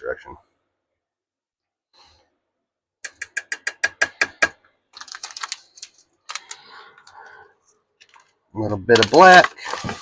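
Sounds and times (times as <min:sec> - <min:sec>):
ratchet-like mechanical clicks: 0:03.0 - 0:04.5.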